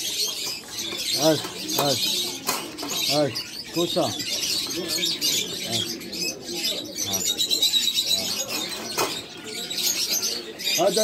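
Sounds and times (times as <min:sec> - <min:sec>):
pigeons cooing: 0:00.0 - 0:11.0
small birds chirping: 0:00.0 - 0:11.0.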